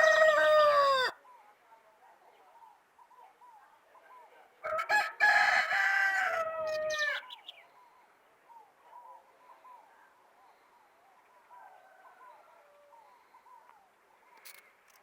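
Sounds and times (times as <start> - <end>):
rooster crowing: 0.0 - 1.2, 4.6 - 7.2
small birds chirping: 6.9 - 15.0.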